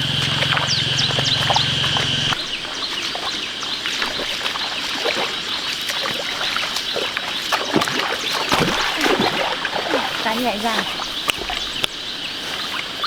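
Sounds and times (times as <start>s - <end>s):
steady hum: 0.0s - 2.4s
splashing in muddy water: 0.0s - 13.0s.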